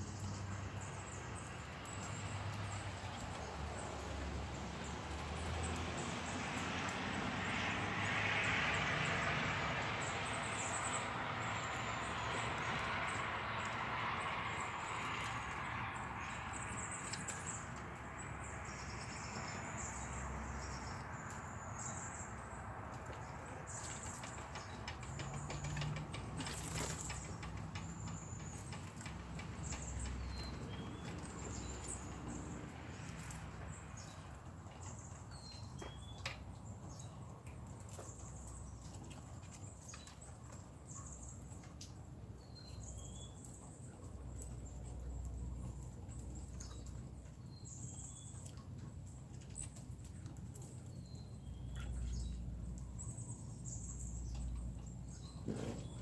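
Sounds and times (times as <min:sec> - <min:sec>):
light ticking and patter: 0:22.4 - 0:55.3.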